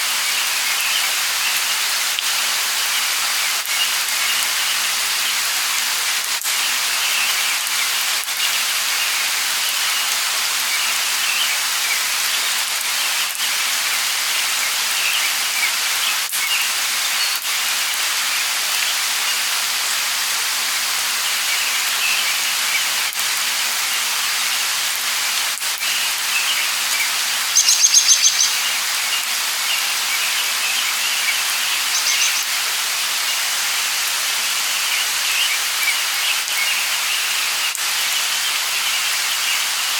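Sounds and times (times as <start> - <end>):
light rain falling: 0.0 - 39.9
small birds chirping: 21.3 - 23.1, 25.8 - 33.6, 34.7 - 39.8.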